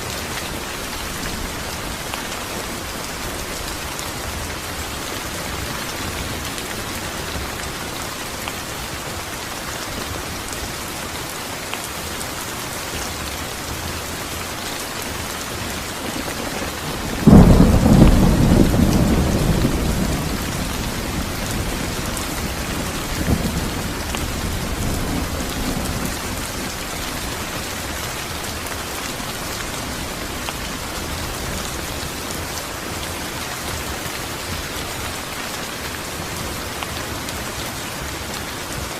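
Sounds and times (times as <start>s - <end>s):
steady rain falling: 0.0s - 38.9s
thunder rumbling: 16.0s - 27.6s.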